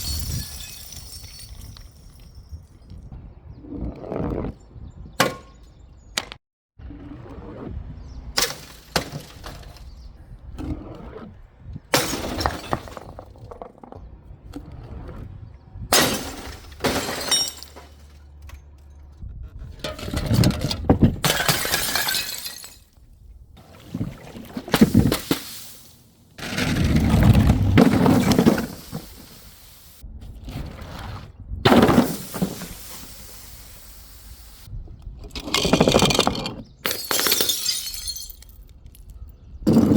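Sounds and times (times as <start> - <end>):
glass bottles smashing: 0.0 - 2.5, 12.0 - 13.5, 16.0 - 18.1, 21.2 - 23.0, 31.7 - 33.6, 35.5 - 39.1
glass shards crunching and clinking: 0.0 - 2.5, 16.0 - 18.2, 21.2 - 23.0, 35.4 - 39.9.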